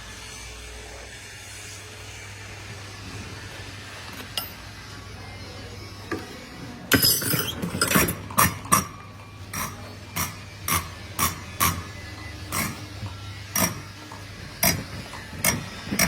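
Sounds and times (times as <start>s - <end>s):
pump test bench humming: 0.0s - 16.0s.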